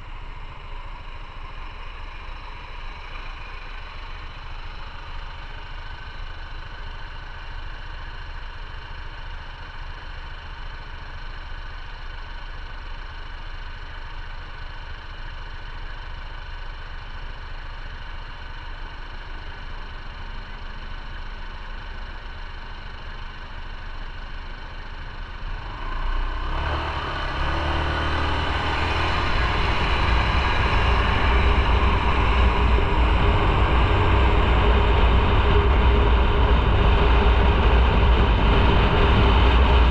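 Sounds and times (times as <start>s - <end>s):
motorcycle engine idling: 0.0s - 26.4s, 27.7s - 39.9s
motorcycle pulling away: 25.5s - 39.9s.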